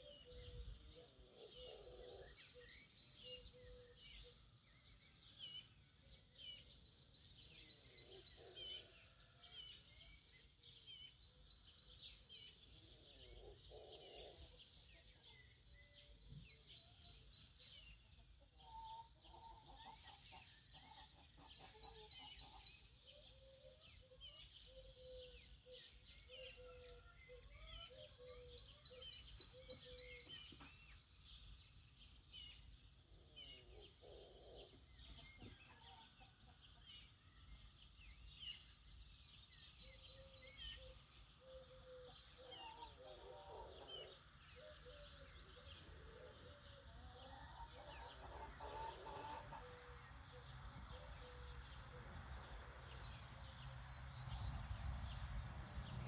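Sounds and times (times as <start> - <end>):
songbirds chirping: 0.0 - 56.0
distant farmyard fowl calling: 46.8 - 50.5.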